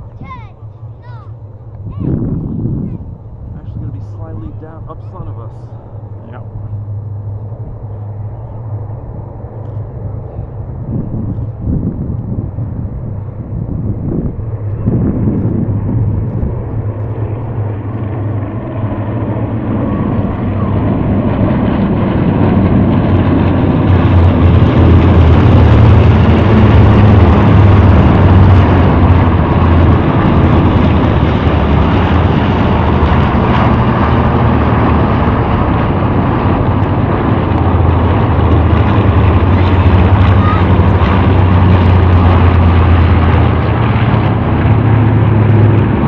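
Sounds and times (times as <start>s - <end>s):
propeller aircraft flying past: 0.0s - 46.0s.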